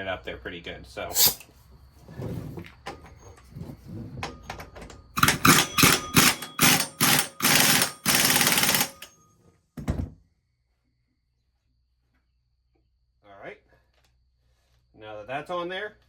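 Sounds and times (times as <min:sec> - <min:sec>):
impact wrench hammering: 0:05.2 - 0:09.2.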